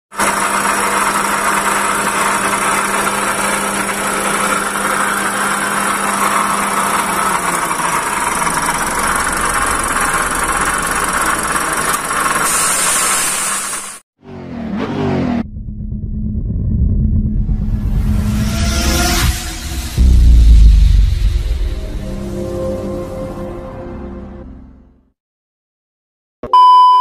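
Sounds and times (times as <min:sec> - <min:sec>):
car engine idling roughly: 0:00.3 - 0:13.2.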